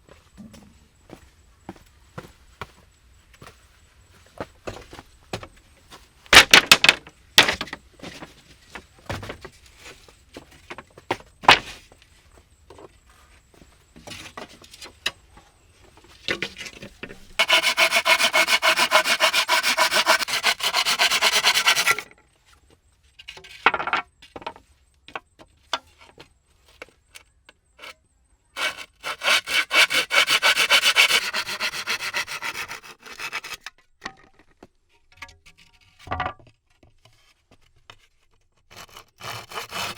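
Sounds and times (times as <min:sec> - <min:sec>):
wooden knocks: 0:06.4 - 0:08.3
hand saw cutting wood: 0:17.4 - 0:22.1, 0:28.6 - 0:33.7, 0:38.7 - 0:39.9.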